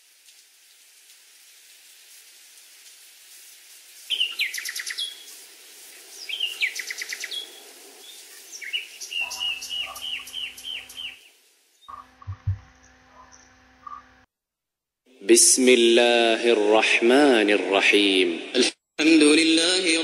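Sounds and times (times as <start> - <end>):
steady background hiss: 0.0 - 11.9
birds singing: 4.1 - 5.4, 6.0 - 14.1.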